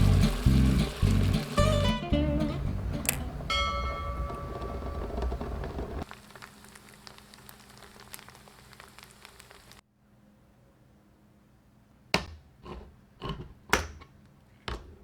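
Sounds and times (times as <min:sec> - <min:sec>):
intro music: 0:00.0 - 0:05.1
low steady hum: 0:00.0 - 0:09.8
bell-like chime: 0:03.5 - 0:05.4.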